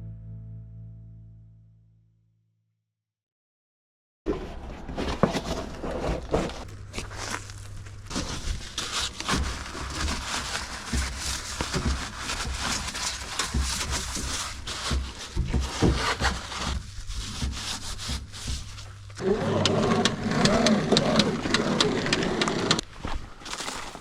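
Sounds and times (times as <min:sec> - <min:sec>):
scraping and rubbing: 0:04.3 - 0:22.8.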